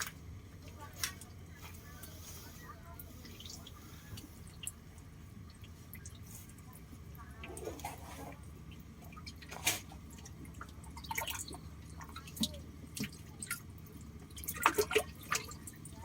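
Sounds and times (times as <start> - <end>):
water dripping and splashing: 3.0 - 16.0.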